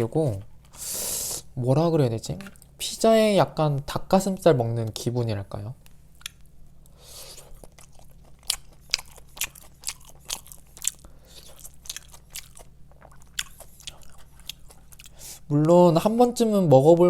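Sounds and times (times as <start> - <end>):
close-up chewing with crunches: 7.2 - 15.5.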